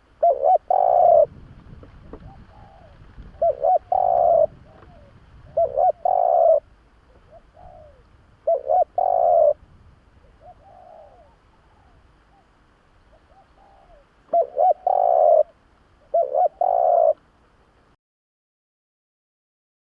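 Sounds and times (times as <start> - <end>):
dove cooing: 0.0 - 1.4, 2.0 - 9.6, 10.2 - 17.2.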